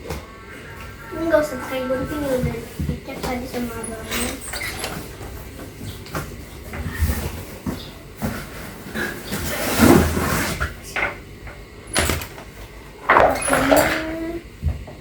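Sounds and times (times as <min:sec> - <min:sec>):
cardboard flaps scraping: 0:06.9 - 0:10.8.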